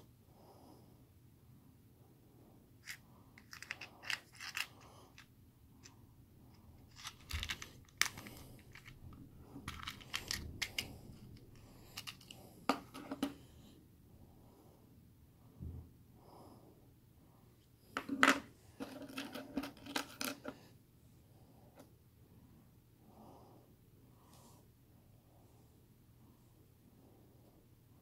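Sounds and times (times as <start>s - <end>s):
small box being handled: 2.8s - 5.3s, 6.8s - 13.4s, 18.0s - 20.6s.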